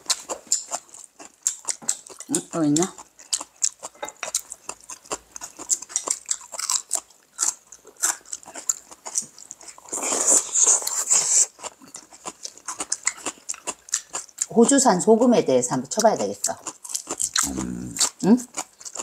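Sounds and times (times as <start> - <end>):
wet chewing: 0.0 - 19.0
mouth clicks: 17.2 - 18.2.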